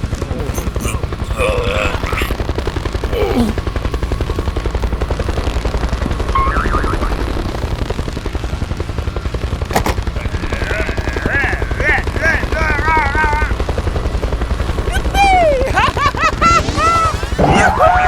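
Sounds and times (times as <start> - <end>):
machine pulsing throb: 0.0 - 18.0.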